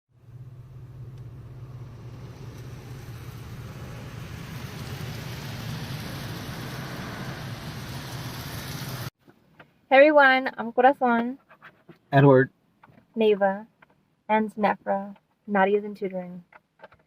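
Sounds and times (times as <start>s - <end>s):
low engine hum: 0.1s - 9.1s
tyre and road noise: 0.2s - 9.8s.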